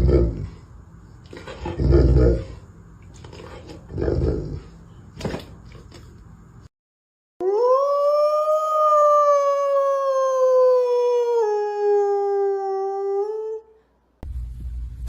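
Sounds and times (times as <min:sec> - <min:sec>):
dog howling: 0:07.4 - 0:13.8.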